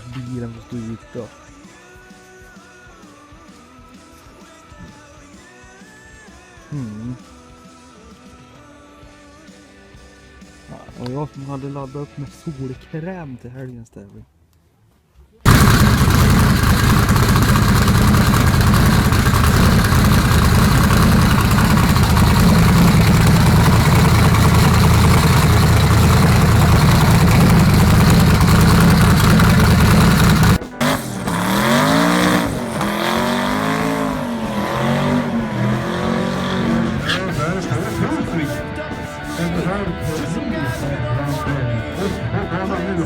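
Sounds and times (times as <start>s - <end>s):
heavy rushing noise: 15.5s - 37.0s
engine revving up and down: 15.5s - 38.0s
drag car engine at high revs: 15.5s - 38.6s.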